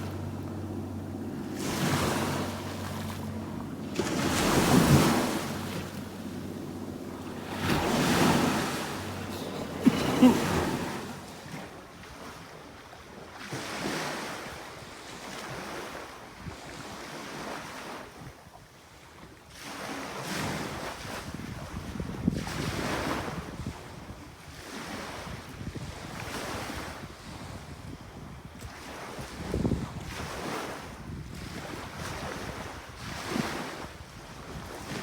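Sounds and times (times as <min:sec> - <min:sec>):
wind buffeting microphone: 0:00.0 - 0:11.7
small waves washing on sand: 0:00.0 - 0:18.2.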